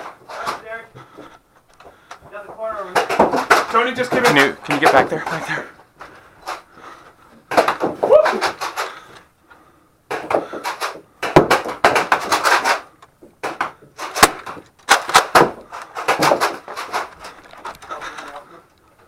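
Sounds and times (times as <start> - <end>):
sharp knocks: 10.1 - 17.1.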